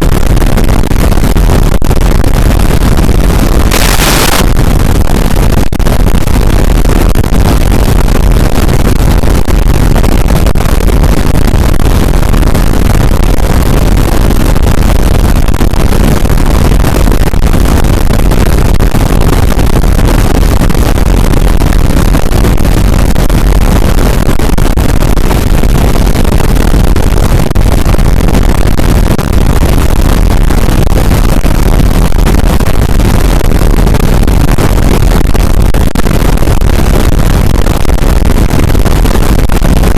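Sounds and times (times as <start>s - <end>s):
harsh distorted noise music: 0.1s - 8.8s.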